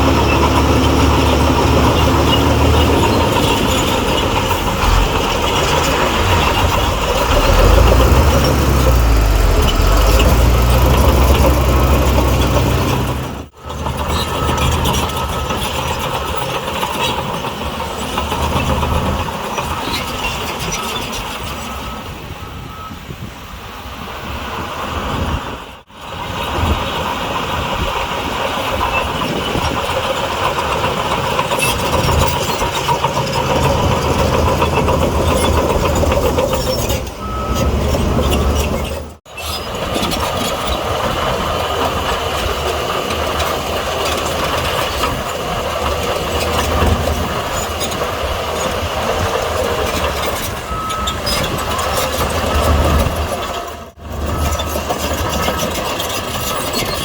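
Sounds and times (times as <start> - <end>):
heavy diesel engines running: 0.0 - 57.0
reversing alarm beeps: 21.6 - 23.0, 37.2 - 38.6, 50.7 - 53.3, 54.3 - 54.8.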